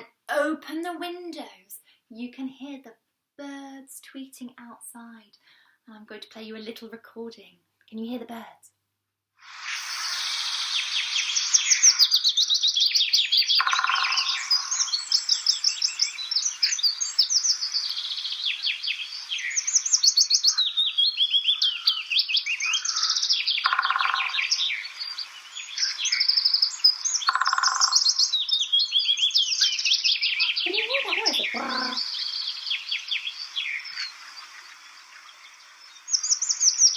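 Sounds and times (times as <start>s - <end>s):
songbirds chirping and trilling: 9.6s - 36.9s
woodpecker drumming rattle: 13.2s - 17.6s, 22.8s - 28.6s.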